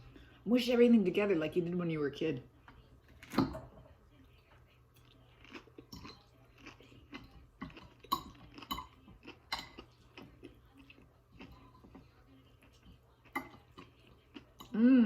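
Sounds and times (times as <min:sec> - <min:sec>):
cutlery clinking and scraping on plate: 0:05.8 - 0:10.3, 0:13.3 - 0:14.7.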